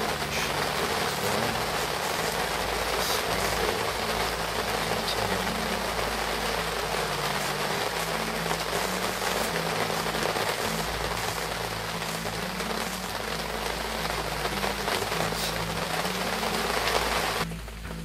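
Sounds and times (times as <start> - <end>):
low hum: 0.0 - 18.0
rain on a vehicle roof: 0.0 - 18.0.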